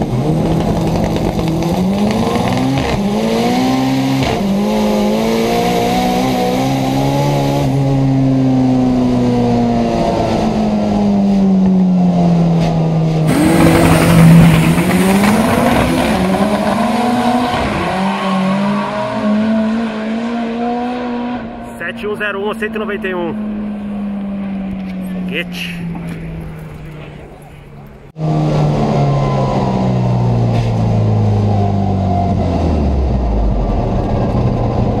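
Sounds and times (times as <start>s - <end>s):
car engine at full throttle: 0.0s - 35.0s
loud rushing noise: 13.2s - 18.8s.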